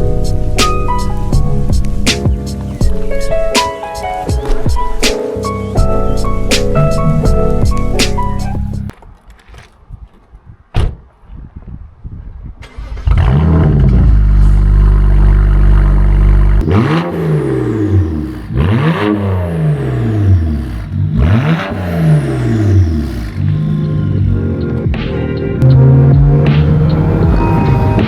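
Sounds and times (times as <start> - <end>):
car engine starting and revving: 12.6 - 28.0.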